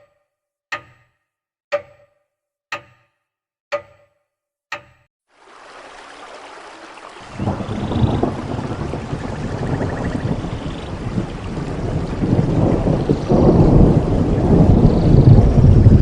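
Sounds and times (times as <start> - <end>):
clock ticking: 0.0 - 5.1.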